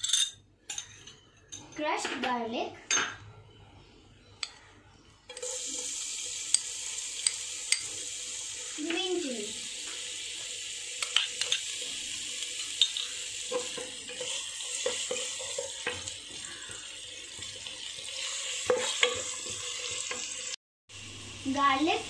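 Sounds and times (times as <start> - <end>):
garlic sizzling in hot oil: 5.3 - 22.0.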